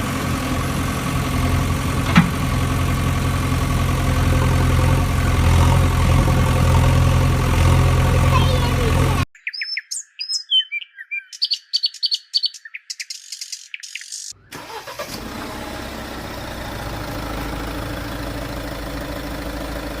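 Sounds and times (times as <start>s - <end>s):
vehicle engine running: 0.0s - 9.3s, 14.6s - 20.0s
birds chirping: 8.2s - 14.5s.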